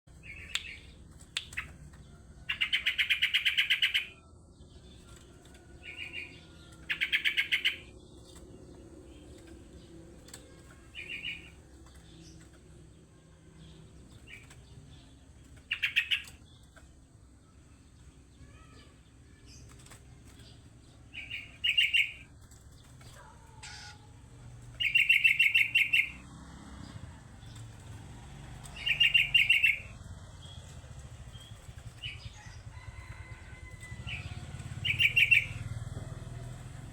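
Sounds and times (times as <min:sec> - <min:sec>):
bird chattering calls: 0:02.5 - 0:04.2, 0:05.9 - 0:07.9, 0:15.7 - 0:16.4, 0:23.0 - 0:24.2, 0:24.8 - 0:26.2, 0:28.7 - 0:30.6, 0:34.1 - 0:35.6.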